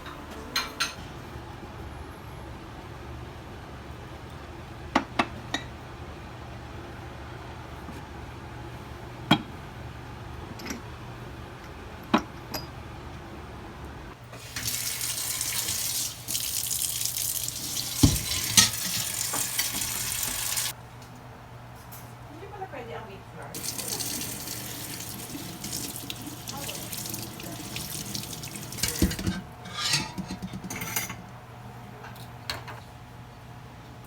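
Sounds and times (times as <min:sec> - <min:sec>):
water running into a sink: 0:14.3 - 0:20.7, 0:23.6 - 0:29.5
crockery knocking: 0:18.0 - 0:19.5, 0:28.6 - 0:30.7.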